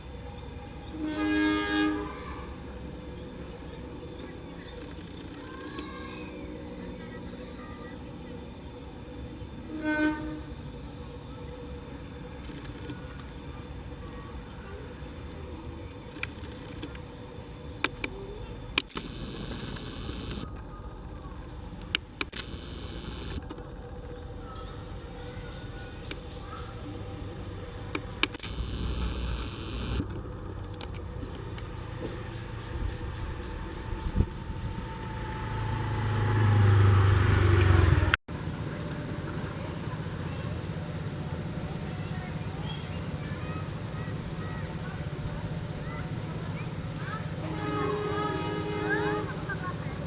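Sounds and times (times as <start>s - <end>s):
train rumble: 0.0s - 50.0s
sharp clicks: 17.8s - 20.7s, 21.8s - 23.7s, 27.9s - 32.2s.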